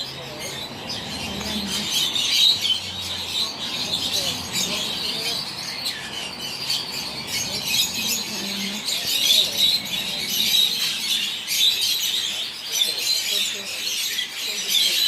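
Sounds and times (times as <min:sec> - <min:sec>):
caged birds chirping: 0:00.0 - 0:15.0.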